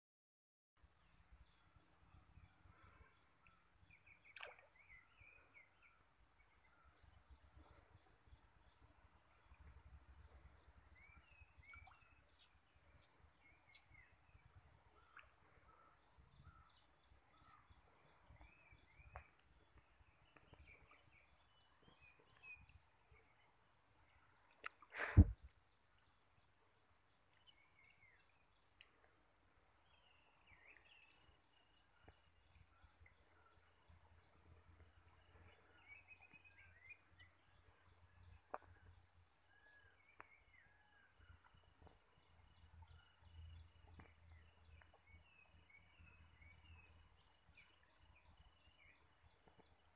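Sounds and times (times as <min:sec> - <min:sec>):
birds chirping faintly: 0:00.8 - 0:49.9
loud short thump: 0:25.0 - 0:25.4.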